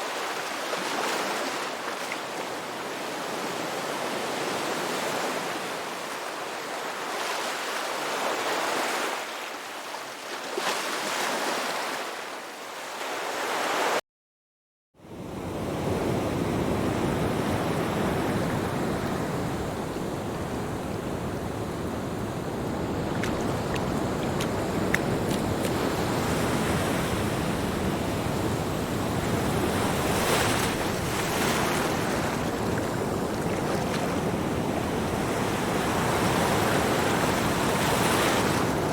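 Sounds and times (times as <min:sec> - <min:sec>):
wind on microphone: 0:16.0 - 0:38.9
surf washing onto beach: 0:16.6 - 0:38.9.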